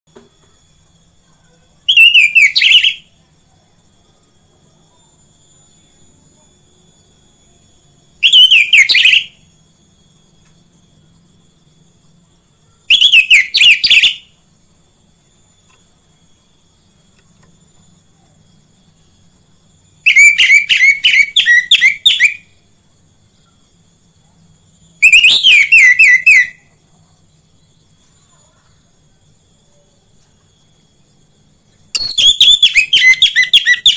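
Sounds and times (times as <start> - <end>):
thrush whistling song: 0.5 - 3.3, 6.7 - 11.8, 12.6 - 14.5, 15.4 - 22.6, 24.7 - 26.8, 30.8 - 33.9.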